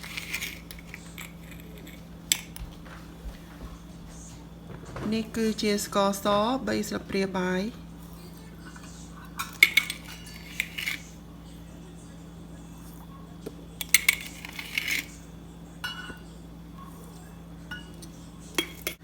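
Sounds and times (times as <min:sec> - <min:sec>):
metal spoon clinking against dish: 0:00.0 - 0:02.6, 0:08.1 - 0:11.1, 0:13.8 - 0:15.2, 0:15.8 - 0:16.3, 0:17.6 - 0:19.0
steady low hum: 0:00.0 - 0:19.0.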